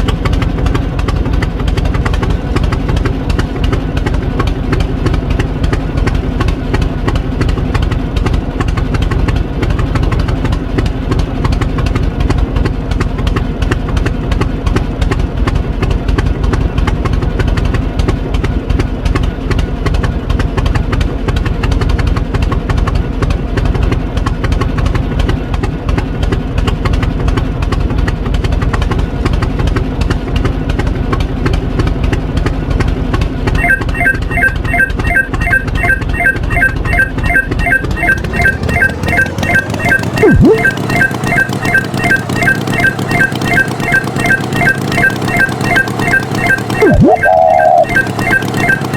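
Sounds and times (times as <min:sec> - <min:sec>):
tractor engine running: 0:29.4 - 0:48.9
organ-like music: 0:33.6 - 0:48.9.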